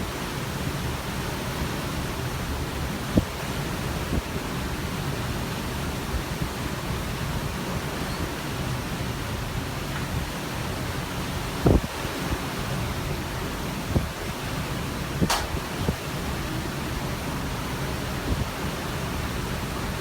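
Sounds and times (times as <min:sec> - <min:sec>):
sea and wind rushing: 0:00.0 - 0:20.0
wind thumps on microphone: 0:11.6 - 0:12.0, 0:15.2 - 0:16.0.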